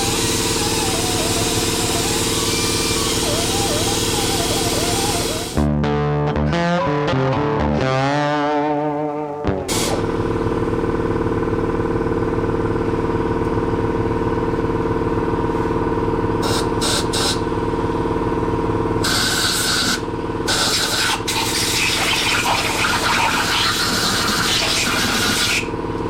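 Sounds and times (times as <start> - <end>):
hissing spray: 0.0 - 5.6
small engine running: 0.0 - 5.6, 9.6 - 26.0.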